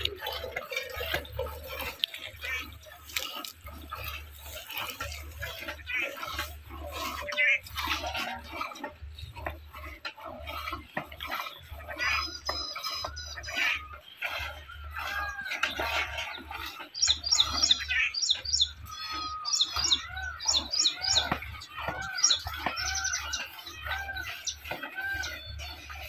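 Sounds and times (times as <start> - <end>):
lower arched bird calls: 10.5 - 26.0.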